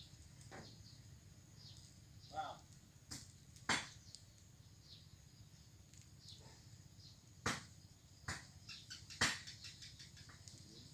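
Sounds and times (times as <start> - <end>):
sharp knocks: 7.4 - 8.5, 9.1 - 9.5.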